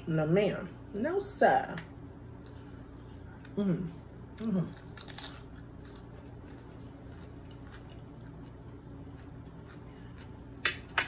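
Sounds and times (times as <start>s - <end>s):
low background hum: 0.0s - 11.0s
person chewing food: 4.3s - 11.0s.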